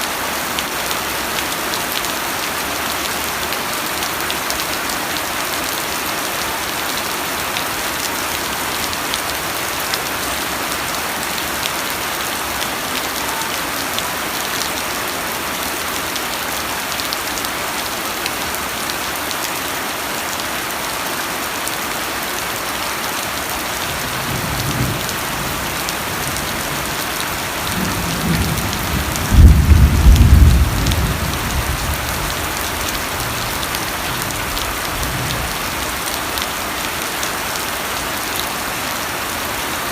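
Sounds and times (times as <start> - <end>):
rain falling on a surface: 0.0 - 39.9
thunder rumbling: 27.7 - 32.7.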